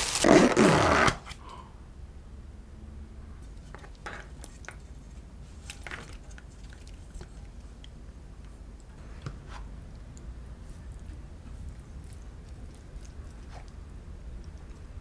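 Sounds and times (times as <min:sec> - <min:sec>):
utensils and packaging clicking: 0:00.0 - 0:00.3
low steady hum: 0:00.0 - 0:15.0.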